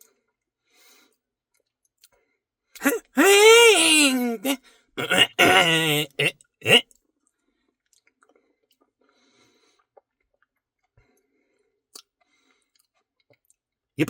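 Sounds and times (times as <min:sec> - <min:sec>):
short vocal noise: 0:02.8 - 0:06.8.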